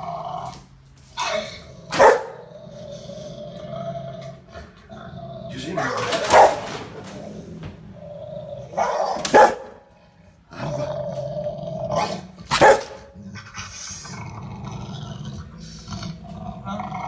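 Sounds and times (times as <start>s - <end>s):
dog growling: 0.0s - 9.8s, 10.4s - 17.0s
dog barking loudly: 1.9s - 2.4s, 6.2s - 6.7s, 8.8s - 9.8s, 12.5s - 13.1s.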